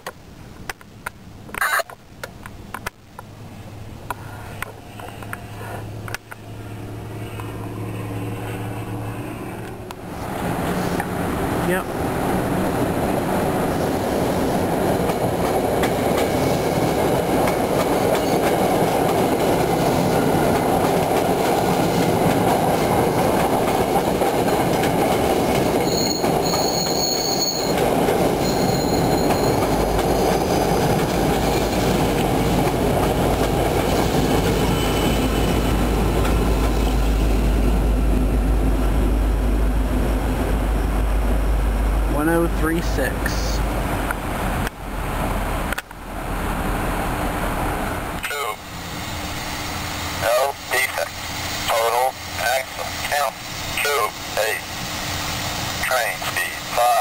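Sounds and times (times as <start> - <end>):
train coaches running over rails: 4.8 - 57.0
high wheel squeals: 25.7 - 30.8, 33.8 - 37.2.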